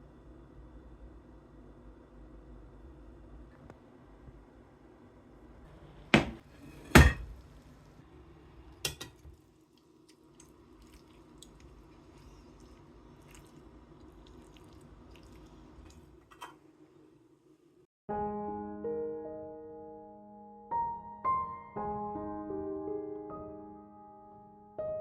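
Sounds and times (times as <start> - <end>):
low steady hum: 0.0 - 17.9.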